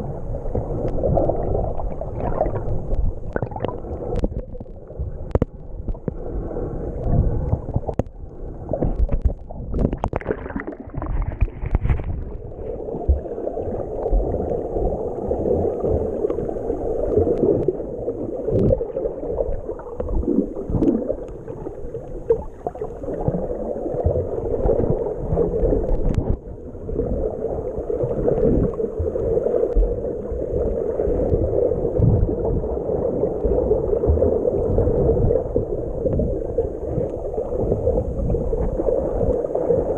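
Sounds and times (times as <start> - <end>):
water splashing: 0.0 - 39.9
wind thumps on microphone: 10.9 - 12.5.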